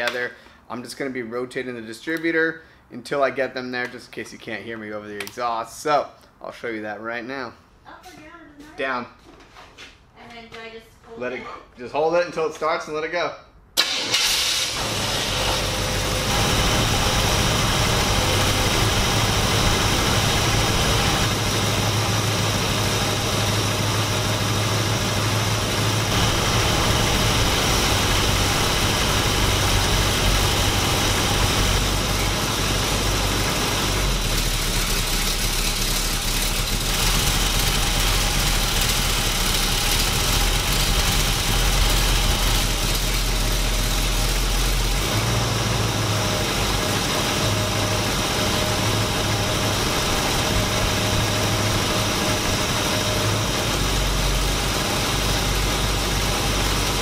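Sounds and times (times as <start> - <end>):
engine running through exhaust: 14.3 - 57.0.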